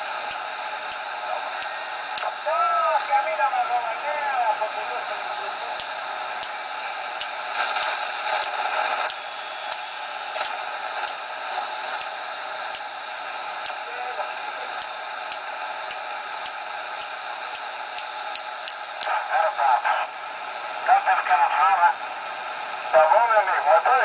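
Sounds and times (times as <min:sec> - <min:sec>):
radio band hiss: 0:00.0 - 0:24.0
sharp clicks: 0:00.3 - 0:02.3, 0:05.8 - 0:06.6, 0:07.2 - 0:11.2, 0:12.0 - 0:12.9, 0:13.6 - 0:13.8, 0:14.8 - 0:19.2
faint voice over radio: 0:01.2 - 0:06.2, 0:13.8 - 0:14.8, 0:19.1 - 0:20.2, 0:20.8 - 0:22.1, 0:22.9 - 0:24.0.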